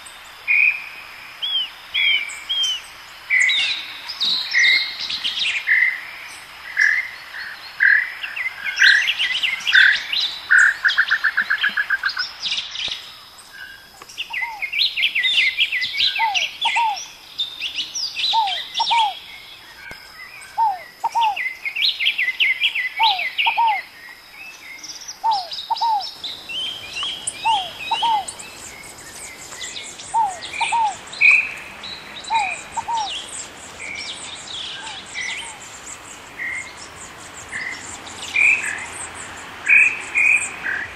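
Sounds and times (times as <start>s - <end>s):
birds chirping and trilling: 0.0s - 40.9s
bird repeating down-slurred notes: 27.1s - 28.4s.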